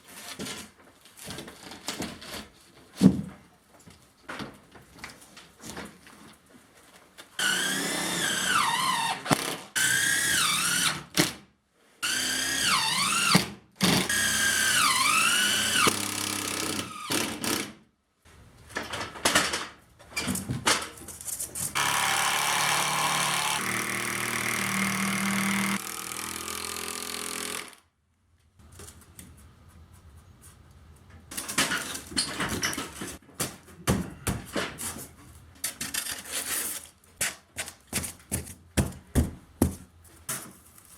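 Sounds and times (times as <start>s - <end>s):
power drill running: 7.4s - 9.1s, 12.0s - 17.2s, 21.8s - 27.8s.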